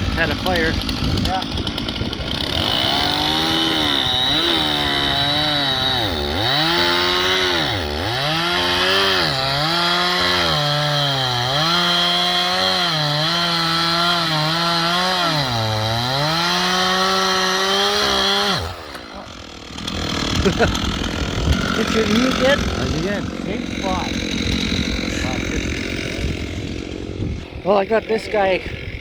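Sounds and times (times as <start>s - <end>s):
chainsaw cutting logs: 0.0s - 29.0s.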